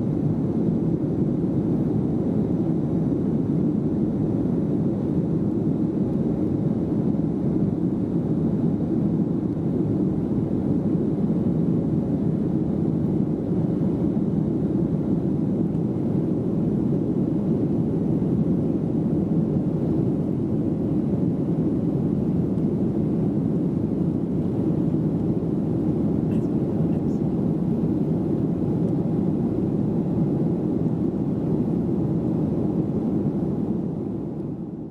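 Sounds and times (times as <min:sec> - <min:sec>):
airliner cabin engine drone: 0:00.0 - 0:34.9.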